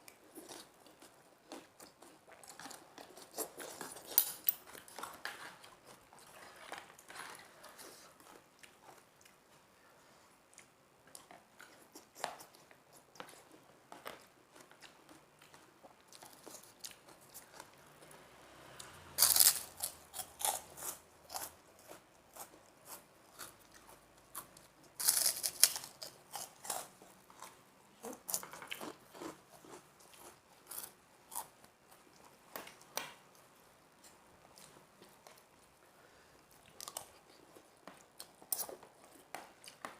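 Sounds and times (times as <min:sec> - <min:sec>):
crisp crackers crunching: 0:19.2 - 0:31.5.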